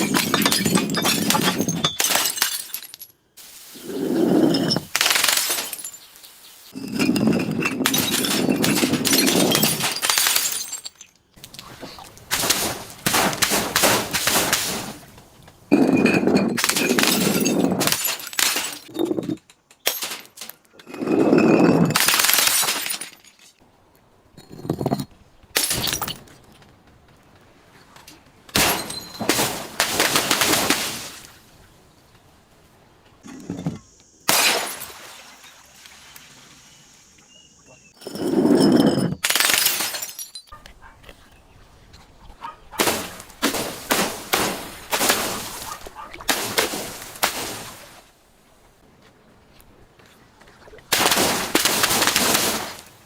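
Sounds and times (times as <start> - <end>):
glass bottles cracking and crunching: 0.0 - 3.2, 3.9 - 6.1, 6.8 - 11.7, 15.7 - 23.6, 24.4 - 26.4, 28.6 - 31.1, 38.0 - 40.6, 50.9 - 52.9.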